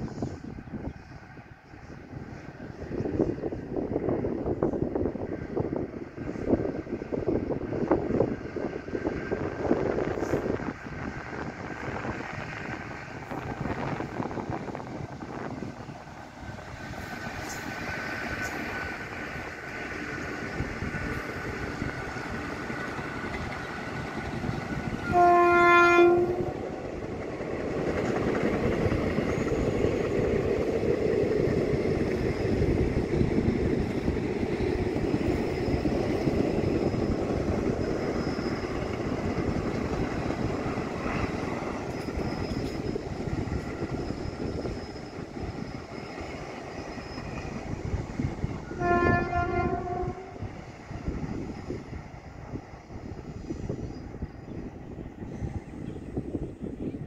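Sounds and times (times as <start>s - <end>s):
train rumbling and clattering past: 0.0s - 57.0s
train horn: 25.0s - 26.7s, 48.6s - 50.5s.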